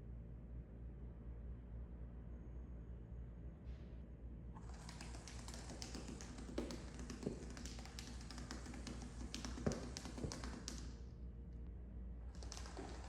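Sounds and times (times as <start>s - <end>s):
taps and knocks: 4.6s - 10.9s, 12.4s - 13.0s
toy ball rattling on hard floor: 4.6s - 10.9s, 12.3s - 13.0s.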